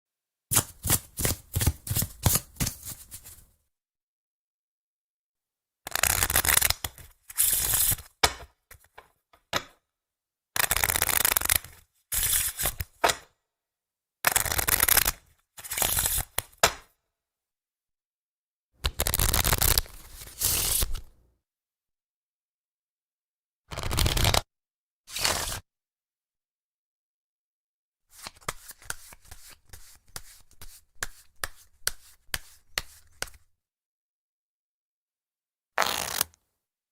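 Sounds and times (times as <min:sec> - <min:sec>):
light card taps: 0:00.5 - 0:03.4
playing cards riffling: 0:00.5 - 0:03.4.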